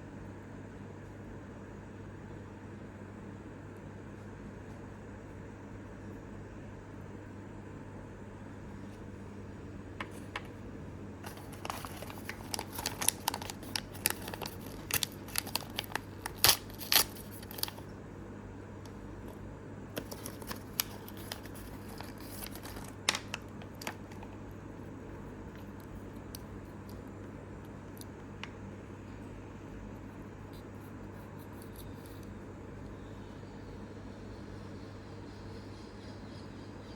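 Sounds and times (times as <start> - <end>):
plastic packaging crinkling and tearing: 11.2 - 17.8, 19.2 - 24.4.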